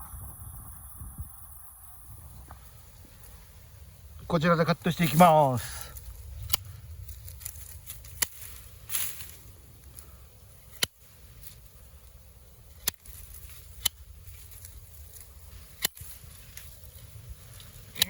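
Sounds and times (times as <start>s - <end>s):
low steady rumble: 0.0s - 18.0s
pruning shears snipping: 4.9s - 11.7s, 12.6s - 18.0s.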